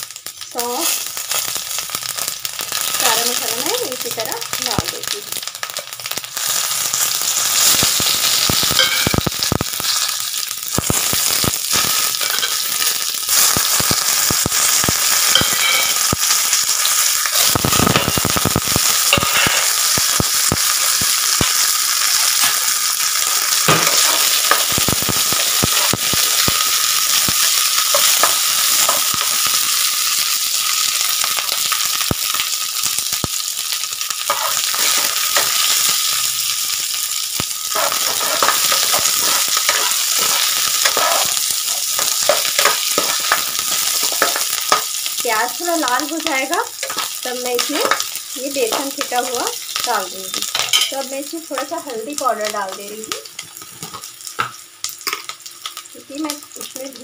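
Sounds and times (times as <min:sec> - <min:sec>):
spices sizzling in hot oil: 0:00.0 - 0:57.0
spoon stirring in a pan: 0:34.2 - 0:36.2, 0:37.7 - 0:44.9.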